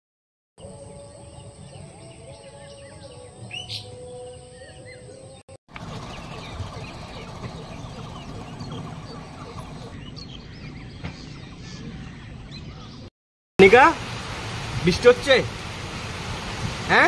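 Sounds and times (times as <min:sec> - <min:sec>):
birds chirping and calling: 0:00.6 - 0:13.1.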